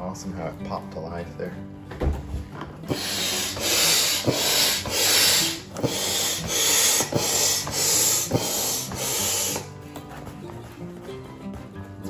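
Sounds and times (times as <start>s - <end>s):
hand air pump whooshing: 2.8s - 12.0s.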